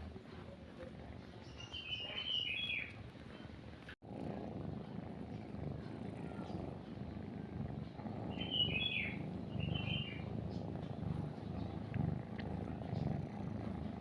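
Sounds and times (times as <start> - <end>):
cat purring: 0.0 - 14.0
bird chirping: 1.4 - 3.0, 8.2 - 13.2.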